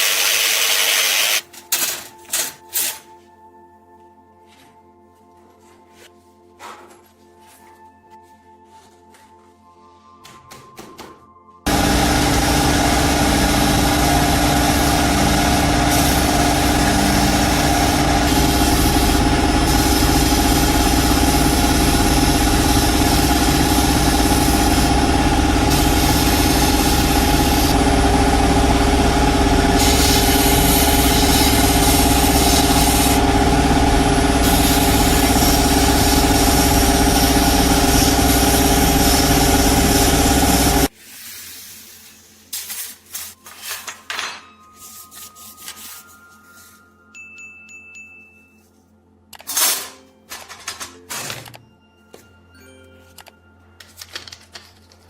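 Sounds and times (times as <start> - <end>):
power tool motor running: 0.0 - 1.5, 11.7 - 40.9.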